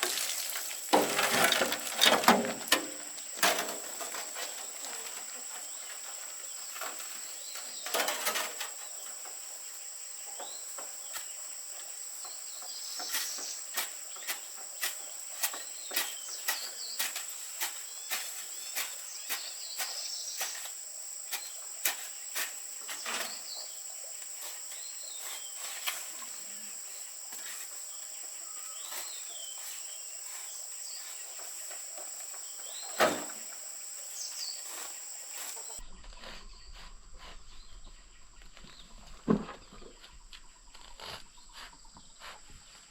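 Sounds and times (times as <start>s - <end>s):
birds chirping: 0.0s - 42.8s
high-pitched insect drone: 19.4s - 38.2s.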